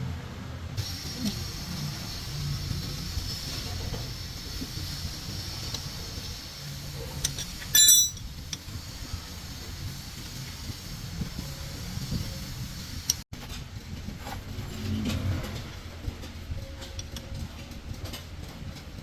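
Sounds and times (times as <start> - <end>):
ringing metal clink: 7.6 - 8.3.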